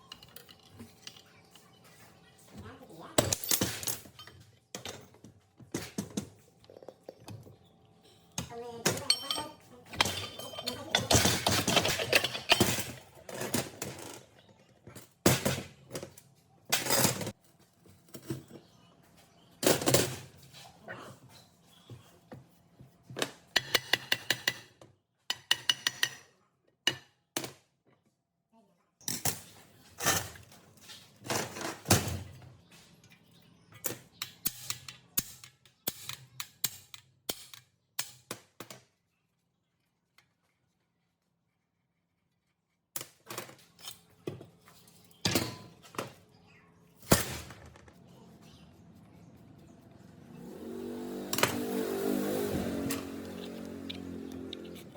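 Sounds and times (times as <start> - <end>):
metal parts clinking: 9.0 - 13.4.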